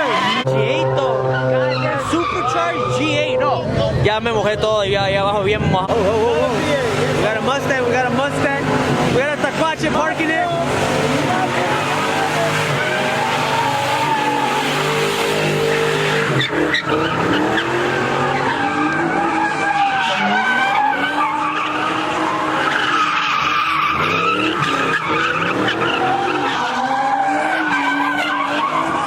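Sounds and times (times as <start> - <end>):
tires squealing on pavement: 0.0 - 4.5, 5.9 - 29.0
car engine revving: 0.0 - 29.0.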